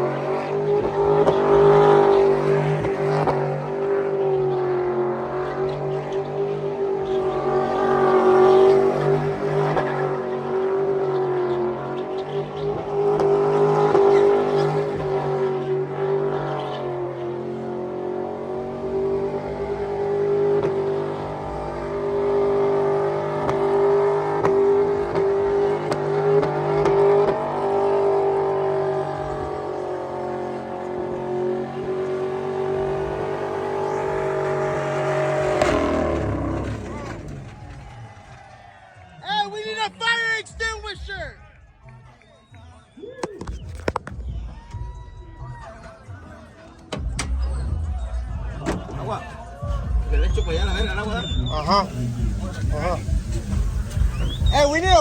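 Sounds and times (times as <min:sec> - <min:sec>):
vehicle engine at high revs: 0:00.0 - 0:38.3, 0:49.8 - 0:55.0.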